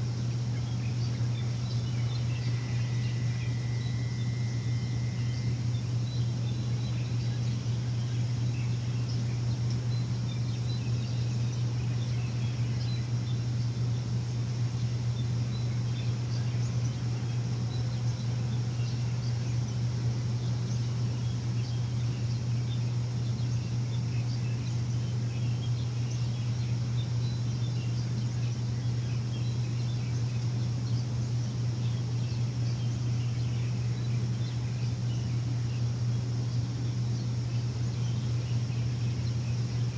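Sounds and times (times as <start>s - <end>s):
faint bird chirps: 0.0s - 39.9s
machine droning: 0.0s - 39.9s.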